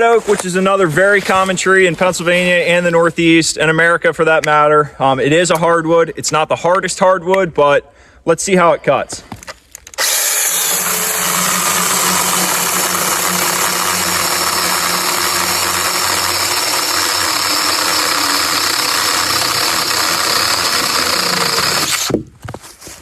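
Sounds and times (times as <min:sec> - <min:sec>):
battery chainsaw cutting wood: 0:10.0 - 0:22.2.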